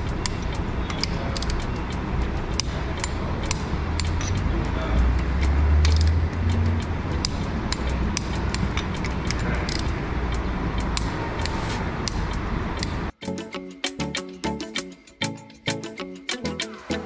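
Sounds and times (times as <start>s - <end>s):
metallic clicks of tools: 0.0s - 13.2s
music: 0.0s - 17.0s.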